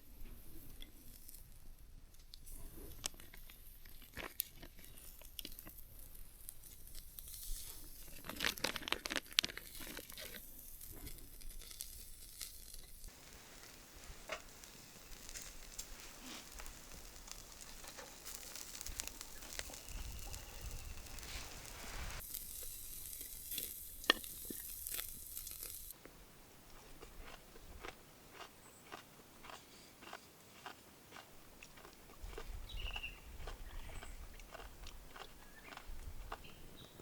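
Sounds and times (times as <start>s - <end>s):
crinkling and rustling handling: 2.8s - 25.9s.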